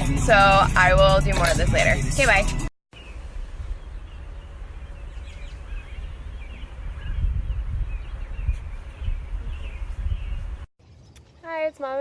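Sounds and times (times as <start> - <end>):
small birds chirping: 2.9 - 12.0
wind rumble on microphone: 3.1 - 10.7.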